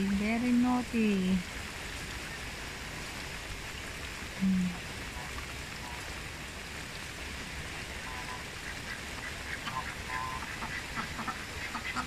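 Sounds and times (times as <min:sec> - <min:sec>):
rain falling on a pond: 0:00.0 - 0:12.0
faint waterfowl calls: 0:08.0 - 0:12.0.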